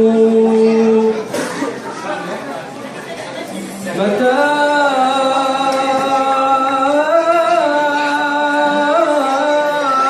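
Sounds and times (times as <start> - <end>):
man singing a long note: 0.0 - 1.2, 4.0 - 10.0.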